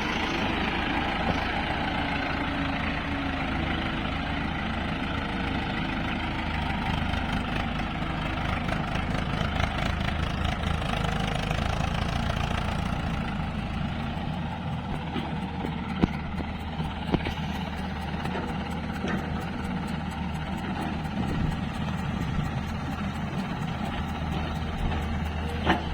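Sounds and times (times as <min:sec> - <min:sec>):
diesel machinery engine running: 0:00.0 - 0:25.9.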